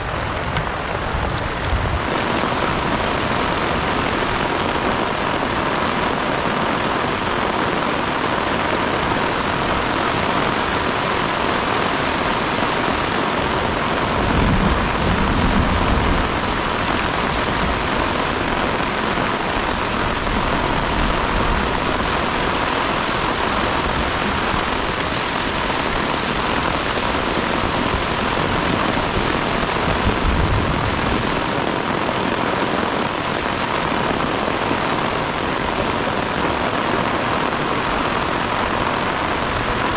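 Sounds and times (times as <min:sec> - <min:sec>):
heavy rain hissing: 0:00.0 - 0:39.9
deep low rumble: 0:14.2 - 0:18.4.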